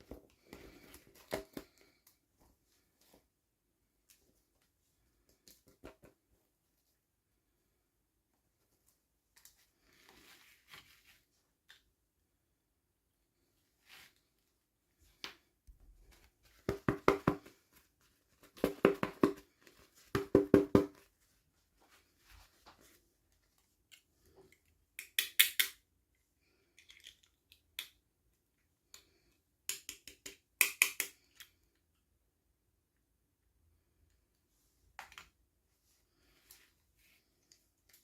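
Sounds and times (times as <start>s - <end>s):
plastic toy pieces clicking: 25.0s - 25.8s, 26.8s - 28.0s.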